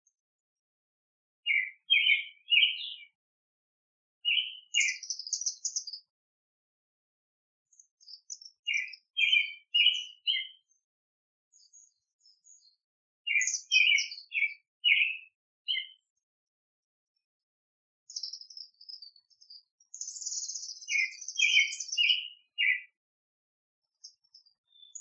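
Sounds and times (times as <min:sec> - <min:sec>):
small songbirds chirping: 0:00.0 - 0:03.2, 0:04.2 - 0:16.5, 0:17.2 - 0:23.1, 0:23.8 - 0:25.0.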